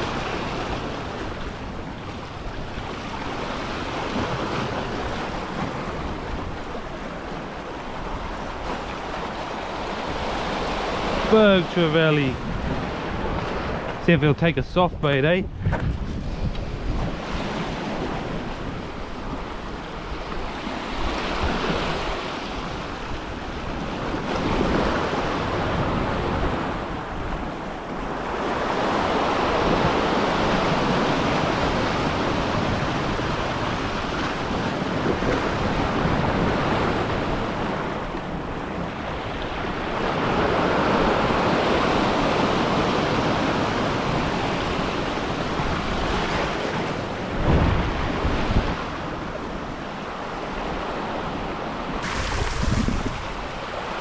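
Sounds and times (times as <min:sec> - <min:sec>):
ocean waves on rocky shore: 0:00.0 - 0:54.0
wind on microphone: 0:12.0 - 0:28.4, 0:29.0 - 0:50.0, 0:51.9 - 0:54.0.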